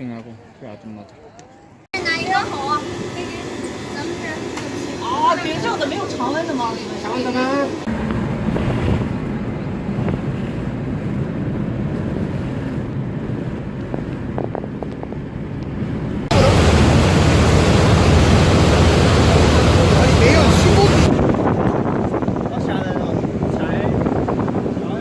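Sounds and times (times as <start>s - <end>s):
deep steady rumble: 7.9s - 25.0s
wind buffeting microphone: 7.9s - 25.0s
wind rushing: 16.1s - 25.0s
sea waves: 16.3s - 21.2s.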